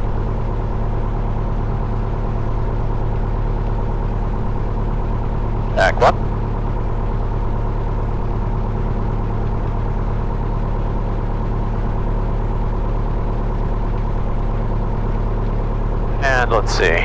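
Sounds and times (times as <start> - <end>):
aircraft engine idling: 11.9 - 17.0.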